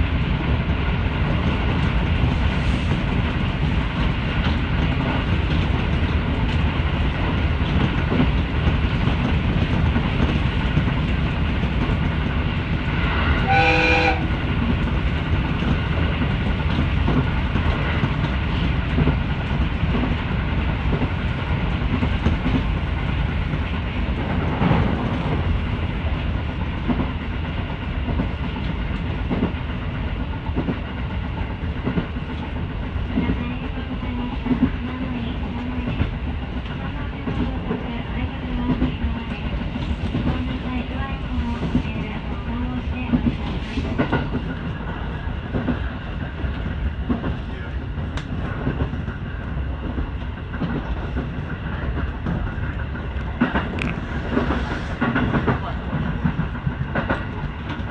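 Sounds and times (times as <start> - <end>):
train rumbling on rails: 0.0 - 57.9
train horn: 13.4 - 14.5.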